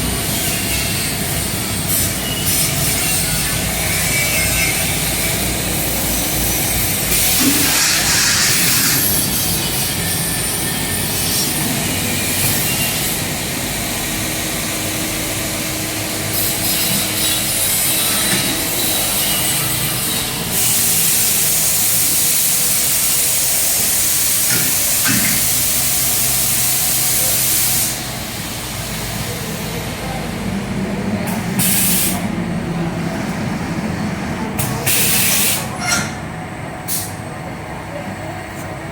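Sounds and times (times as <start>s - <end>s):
gas hissing from laser cutter: 0.0s - 30.3s, 31.5s - 32.3s, 34.6s - 36.0s, 36.9s - 37.2s
machine noise: 0.0s - 37.4s.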